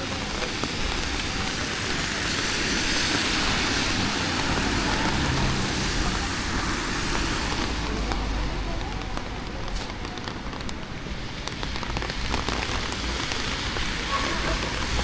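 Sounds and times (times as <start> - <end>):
tyres hissing on wet road: 0.0 - 15.0.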